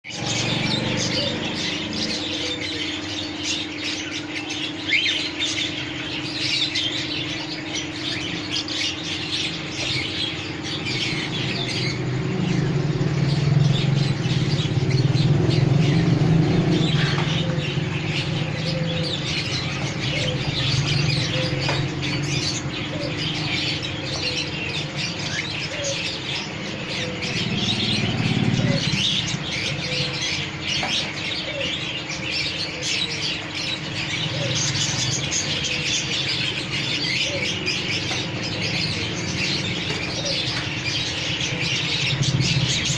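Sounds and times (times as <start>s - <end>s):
birds chirping and tweeting: 0.0s - 42.9s
steady low hum: 0.0s - 42.9s
loud low rumble: 26.5s - 30.2s.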